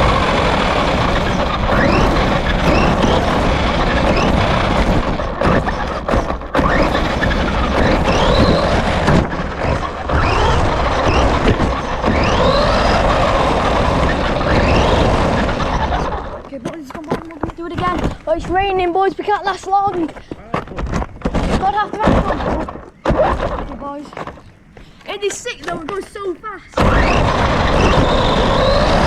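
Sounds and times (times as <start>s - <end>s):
wind rushing: 0.0s - 16.5s
rc car motor whining: 0.0s - 16.6s, 26.8s - 29.0s
road noise: 0.0s - 20.6s, 23.9s - 29.0s.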